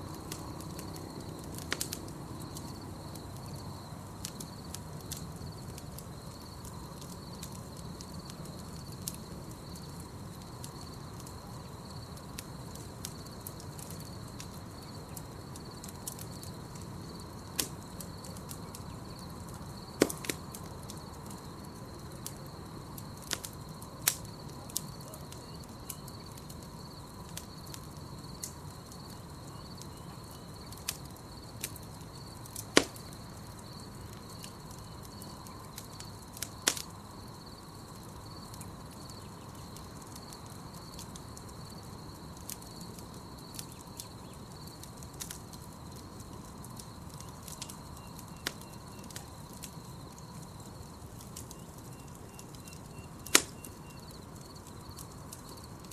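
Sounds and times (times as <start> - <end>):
campfire crackling and popping: 0.0 - 55.9.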